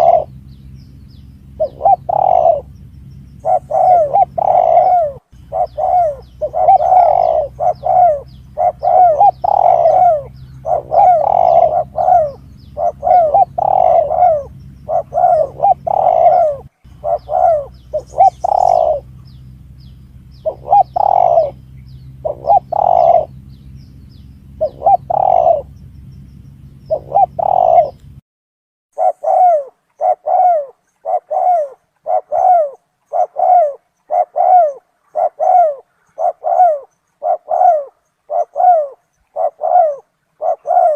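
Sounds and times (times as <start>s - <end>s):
dove cooing: 0.0s - 28.2s, 29.0s - 40.9s
low steady hum: 0.0s - 28.2s.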